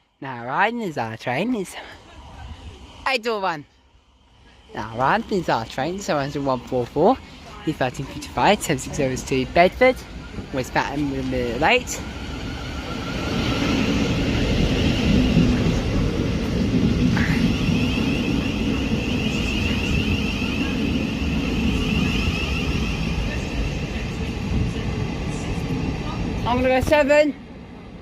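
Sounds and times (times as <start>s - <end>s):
train high whine: 0.0s - 28.0s
train wheels rumbling: 1.2s - 28.0s
train brake squeal: 17.2s - 23.6s.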